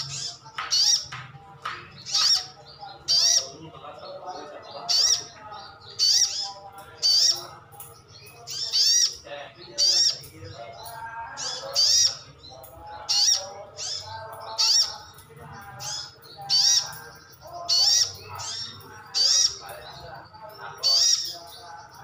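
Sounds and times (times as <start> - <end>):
sunbird high-pitched calls: 2.0 - 3.6, 4.8 - 7.5, 8.2 - 9.2, 11.4 - 12.4, 13.0 - 15.2, 15.8 - 20.0, 20.6 - 22.0.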